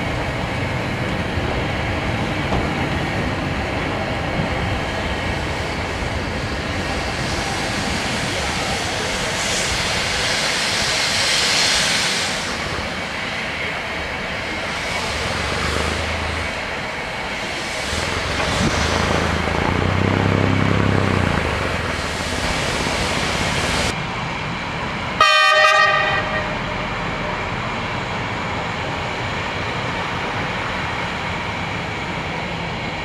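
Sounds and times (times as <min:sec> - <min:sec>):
railcar engine and rail rumble: 0:00.0 - 0:33.0
train horn blast: 0:25.2 - 0:26.9.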